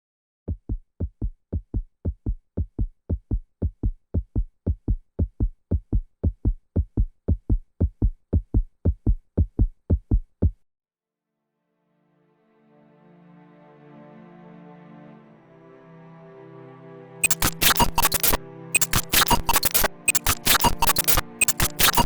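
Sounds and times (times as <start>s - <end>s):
electronic beat of low thumps: 0.5s - 10.6s, 17.2s - 22.0s.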